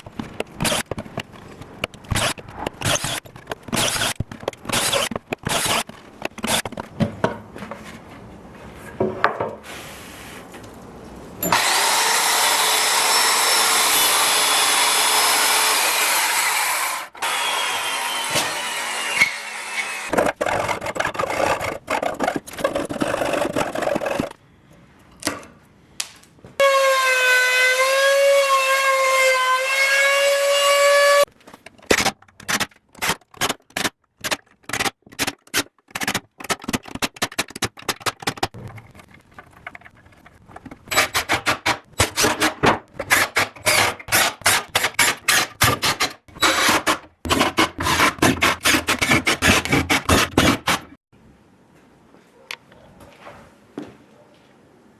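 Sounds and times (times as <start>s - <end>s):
knocks and clatters: 31.4s - 44.1s.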